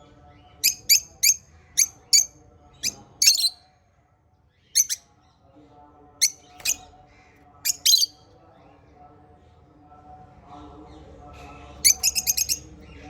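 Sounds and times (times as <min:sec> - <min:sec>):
parrots chirping: 0:00.6 - 0:03.6, 0:04.8 - 0:05.0, 0:06.2 - 0:06.8, 0:07.7 - 0:08.2, 0:11.8 - 0:13.0.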